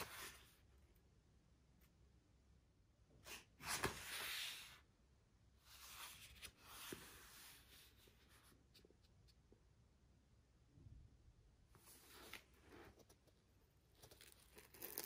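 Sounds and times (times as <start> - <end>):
soft rubbing handling noise: 5.6 - 9.4.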